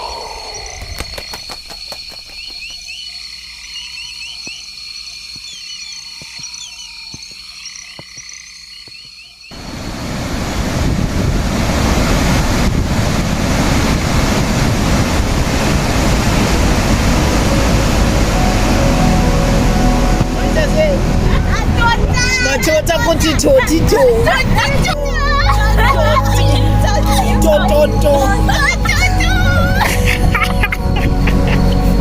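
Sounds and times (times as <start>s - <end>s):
frogs and insects trilling: 0.0s - 9.9s
waterfall rushing: 9.5s - 30.6s.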